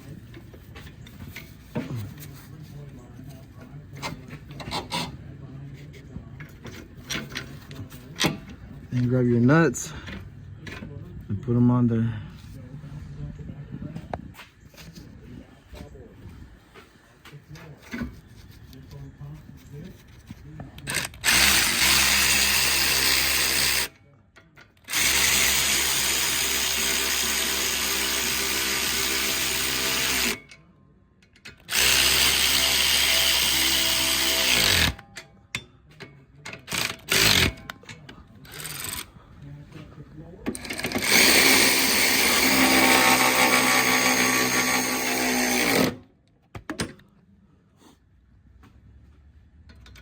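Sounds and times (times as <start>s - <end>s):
power driver spinning nuts: 20.8s - 23.9s, 24.9s - 30.4s, 31.6s - 35.0s, 36.6s - 37.7s, 38.5s - 39.1s, 40.6s - 46.0s.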